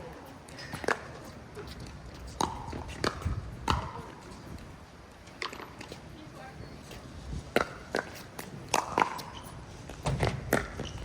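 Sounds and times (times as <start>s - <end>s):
wind rumbling on microphone: 1.8s - 5.0s, 6.5s - 7.7s.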